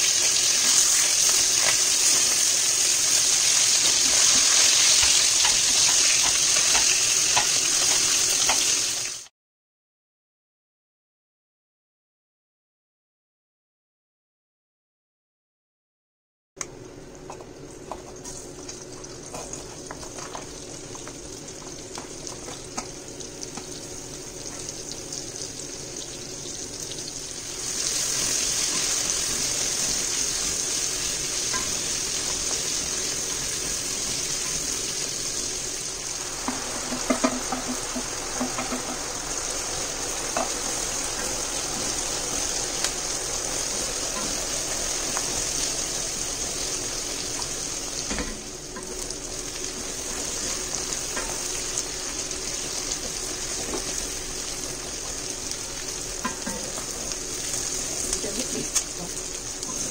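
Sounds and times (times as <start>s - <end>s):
vegetables sizzling in oil: 0.0s - 9.3s, 17.3s - 59.9s.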